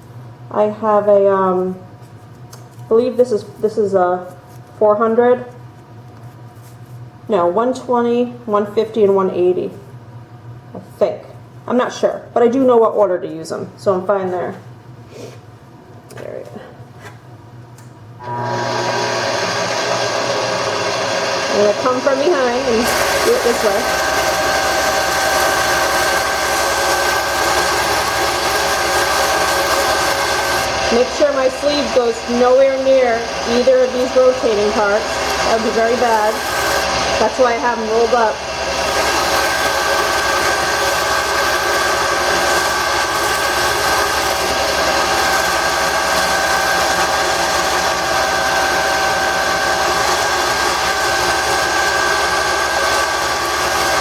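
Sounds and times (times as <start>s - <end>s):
wood lathe motor whine: 18.2s - 54.0s
sandpaper hissing on spinning wood: 21.5s - 44.5s.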